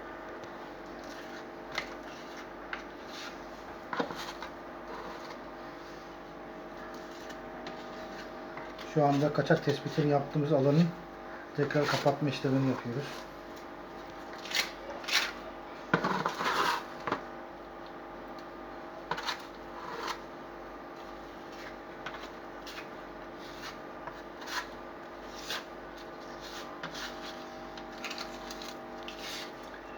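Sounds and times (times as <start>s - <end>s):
faint steady hum: 0.0s - 29.9s
hand scraping and rubbing: 21.5s - 29.7s.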